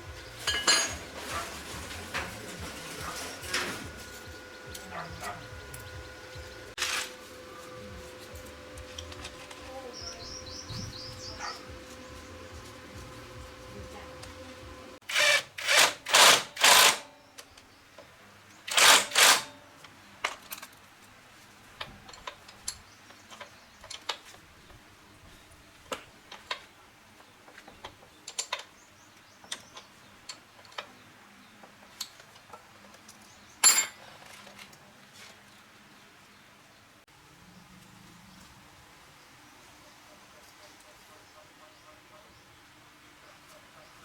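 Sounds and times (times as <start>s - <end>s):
metal tools clinking: 0.4s - 6.1s, 33.1s - 34.7s.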